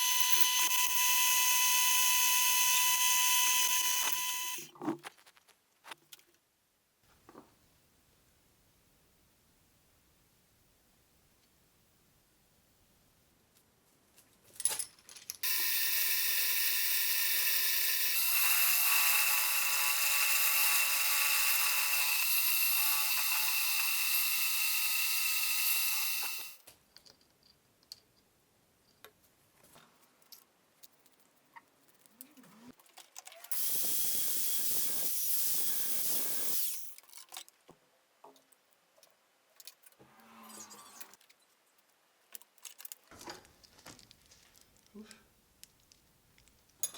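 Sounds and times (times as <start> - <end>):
power tool whining: 0.0 - 4.6, 15.4 - 26.6, 33.5 - 36.9
small clicks and knocks: 26.6 - 32.2.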